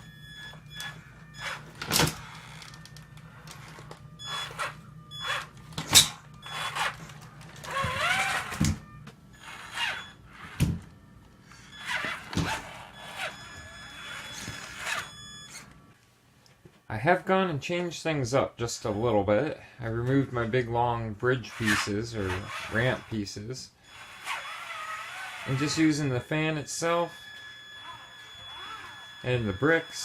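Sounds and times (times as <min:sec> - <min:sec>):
rc truck motor whining: 0:00.0 - 0:10.9, 0:11.5 - 0:15.8, 0:21.5 - 0:26.2, 0:27.1 - 0:30.0.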